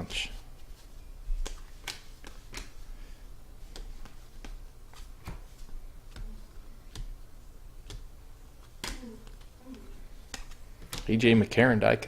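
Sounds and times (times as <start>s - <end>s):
low steady hum: 0.0s - 12.0s
cards being flipped: 1.4s - 2.8s, 3.6s - 7.2s, 7.8s - 11.1s.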